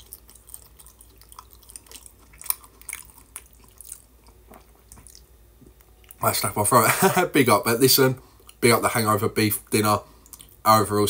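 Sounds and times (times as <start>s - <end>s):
person chewing with crunches: 0.0s - 6.3s, 8.3s - 8.6s, 9.6s - 10.6s.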